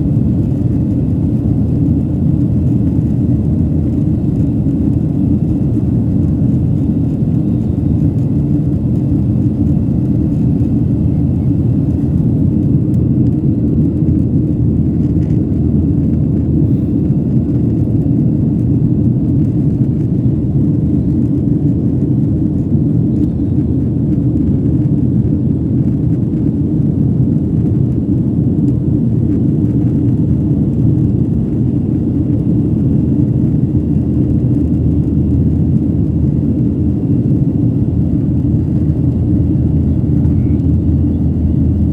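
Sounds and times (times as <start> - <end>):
airliner cabin engine rumble: 0.0 - 41.9.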